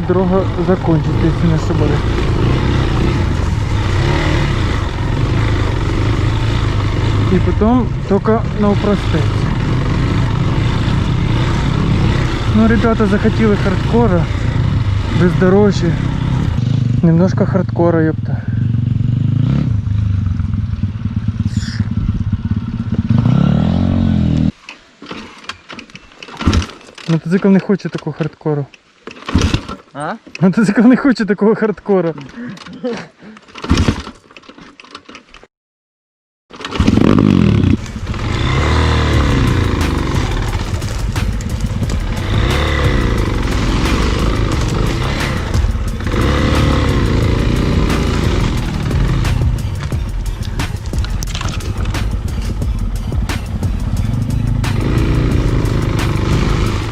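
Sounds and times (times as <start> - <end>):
pit bike engine running: 0.0 - 24.5, 36.6 - 56.9
sharp knocks and rattles: 37.8 - 56.9
bike clattering: 39.2 - 56.1.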